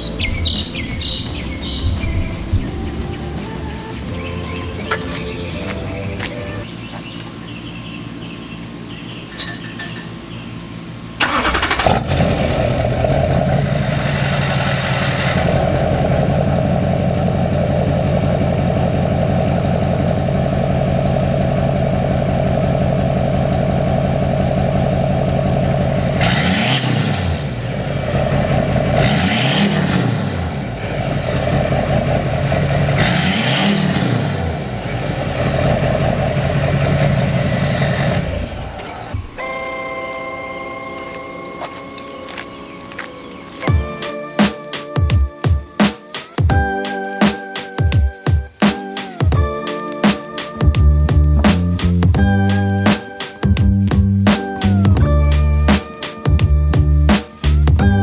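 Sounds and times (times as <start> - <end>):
diesel engine idling and revving: 0.0 - 44.1.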